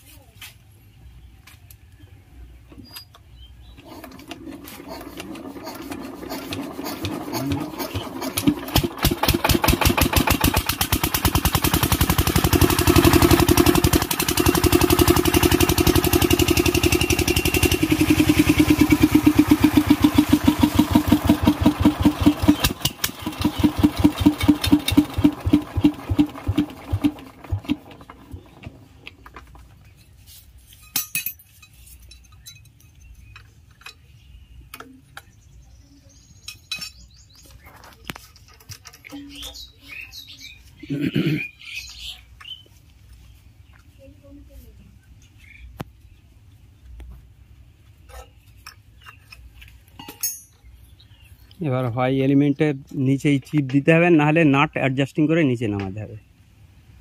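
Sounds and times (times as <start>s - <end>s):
diesel engine firing: 3.8s - 29.2s.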